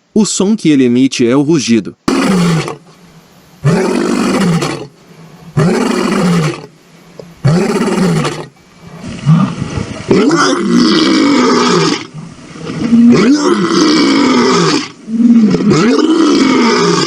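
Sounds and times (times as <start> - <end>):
lion roaring: 2.1 - 2.8, 3.6 - 6.7, 7.3 - 17.0.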